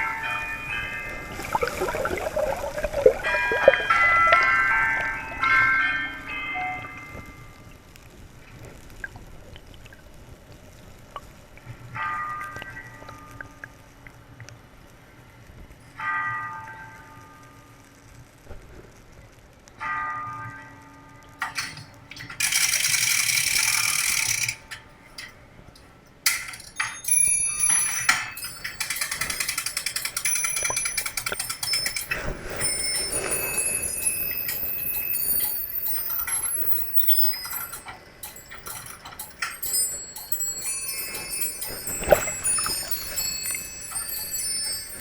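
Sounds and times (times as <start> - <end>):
metal chimes and bells ringing: 0.0 - 7.8, 21.4 - 45.0.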